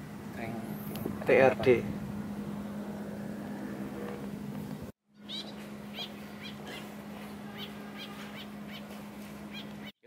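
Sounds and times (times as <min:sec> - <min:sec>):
steady low hum: 0:00.0 - 0:09.9
birds chirping: 0:03.9 - 0:10.0.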